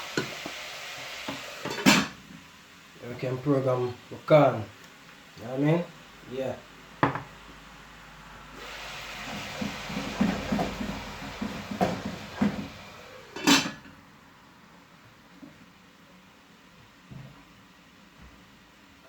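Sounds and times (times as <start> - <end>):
pots and utensils knocking: 1.3 - 2.2, 9.3 - 13.9.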